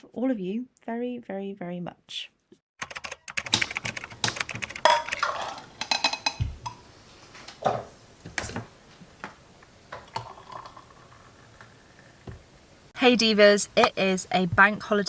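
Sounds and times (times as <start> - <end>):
small hard objects clinking: 4.2 - 6.4.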